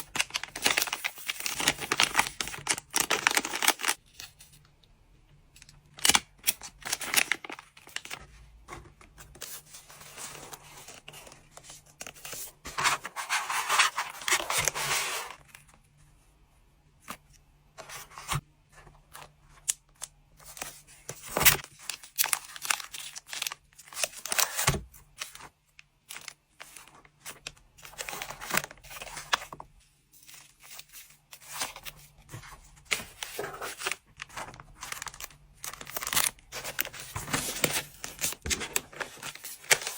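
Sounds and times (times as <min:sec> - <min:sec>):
packaging rustling and crinkling: 0:00.0 - 0:04.0, 0:06.0 - 0:08.3, 0:20.4 - 0:25.5, 0:26.1 - 0:29.6, 0:30.2 - 0:39.9.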